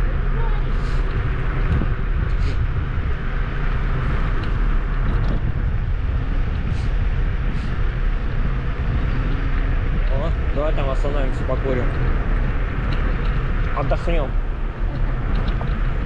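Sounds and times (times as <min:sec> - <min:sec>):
scooter tyres rumbling: 0:00.0 - 0:16.0
wind on microphone: 0:00.0 - 0:16.0.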